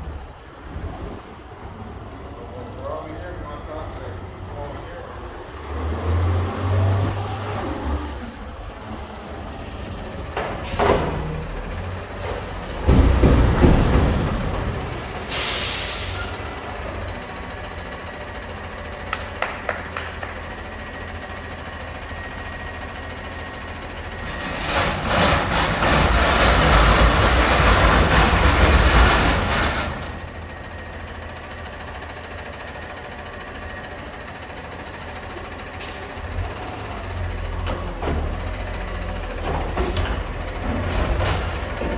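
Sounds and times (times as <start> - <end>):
garbage truck diesel engine: 0.0 - 41.9
air brakes hissing: 14.9 - 16.5, 35.8 - 36.2.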